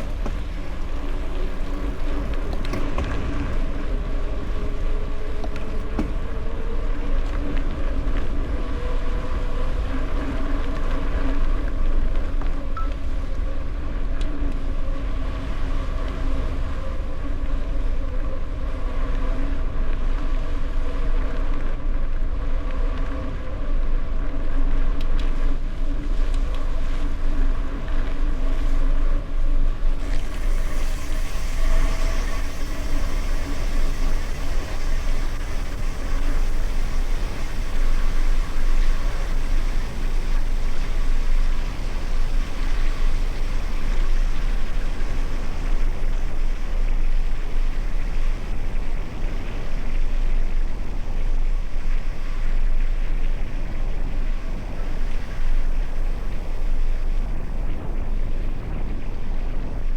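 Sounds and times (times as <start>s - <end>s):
bike tyre noise: 0.0s - 12.6s, 27.8s - 59.9s
wind rushing over microphone: 0.0s - 59.9s.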